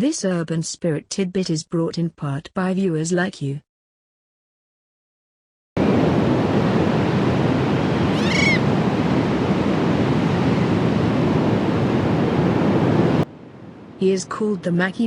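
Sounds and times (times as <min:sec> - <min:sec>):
high animal call: 0:07.8 - 0:08.7.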